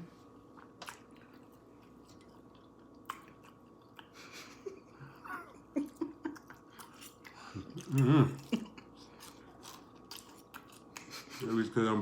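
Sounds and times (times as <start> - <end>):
faint chewing: 0.4 - 4.7, 5.8 - 11.5.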